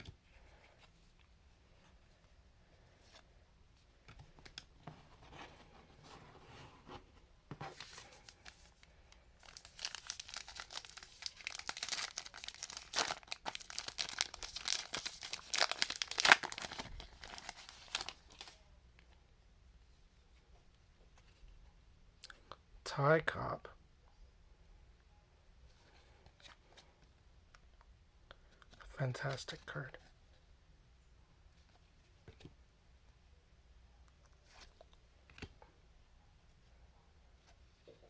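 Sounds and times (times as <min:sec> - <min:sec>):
wrapper tearing and crinkling: 0:09.4 - 0:18.6.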